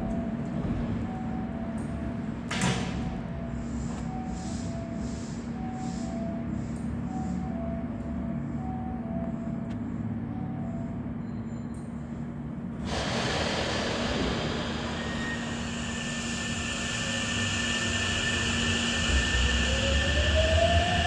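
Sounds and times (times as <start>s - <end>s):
high whine of train motors: 0.0s - 21.0s
electric train hum: 12.0s - 21.0s
train rolling noise: 12.7s - 21.0s.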